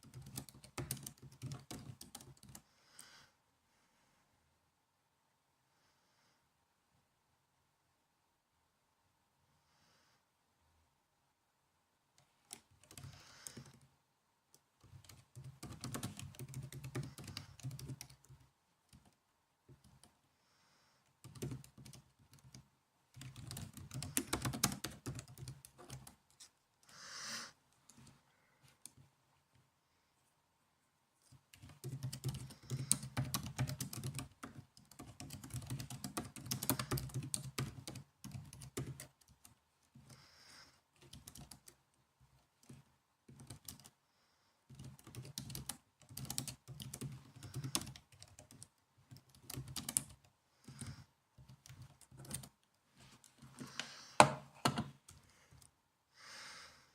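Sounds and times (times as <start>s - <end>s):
typing on laptop keyboard: 0.0s - 2.7s, 12.2s - 13.9s, 14.8s - 20.2s, 21.1s - 26.4s, 31.3s - 40.3s, 40.9s - 41.8s, 42.4s - 44.0s, 44.7s - 52.6s.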